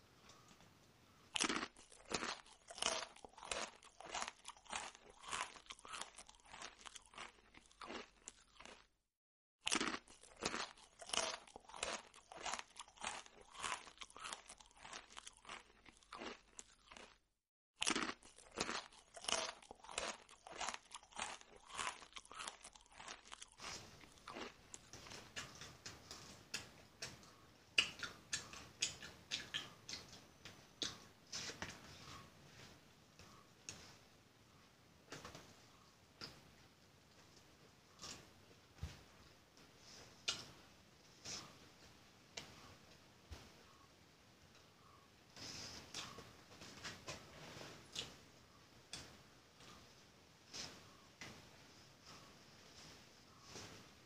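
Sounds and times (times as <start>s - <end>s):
person chewing crunchy food: 1.3s - 8.9s, 9.6s - 17.2s, 17.8s - 34.0s, 37.9s - 39.1s, 45.4s - 48.2s.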